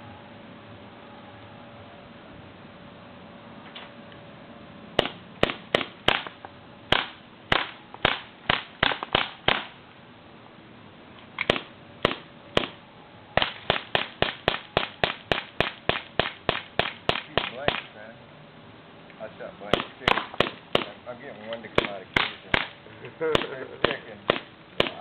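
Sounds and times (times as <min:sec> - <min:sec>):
bb gun firing pops: 0:05.0 - 0:09.7, 0:11.4 - 0:12.8, 0:13.4 - 0:17.9, 0:19.7 - 0:20.9, 0:23.4 - 0:25.0.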